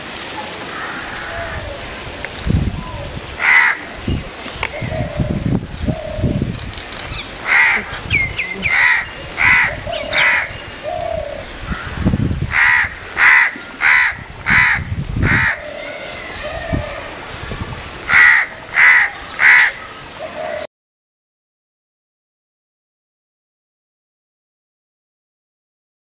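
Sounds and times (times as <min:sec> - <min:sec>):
crow cawing: 0:00.7 - 0:01.6, 0:03.4 - 0:03.9, 0:07.4 - 0:08.0, 0:08.6 - 0:10.6, 0:11.7 - 0:17.1, 0:18.1 - 0:19.9.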